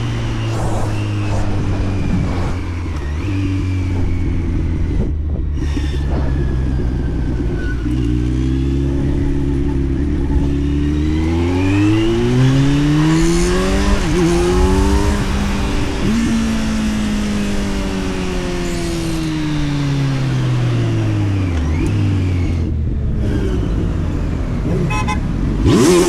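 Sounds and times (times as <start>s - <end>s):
gear change: 0.0s - 10.8s
motorcycle engine accelerating: 0.0s - 26.0s.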